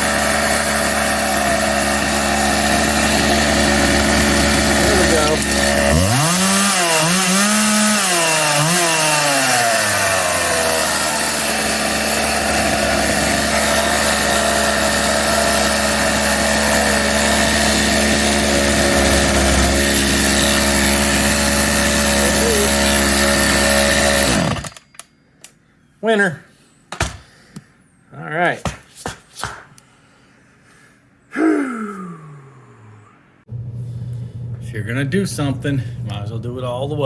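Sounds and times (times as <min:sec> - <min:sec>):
chainsaw engine revving: 0:00.0 - 0:24.8.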